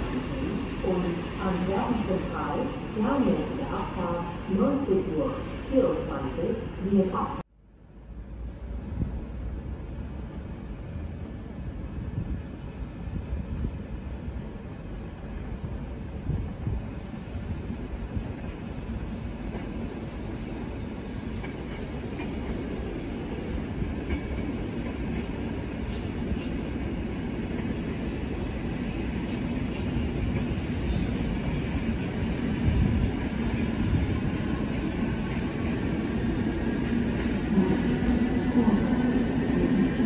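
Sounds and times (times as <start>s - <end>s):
train wheels rumbling on rails: 8.4s - 40.0s.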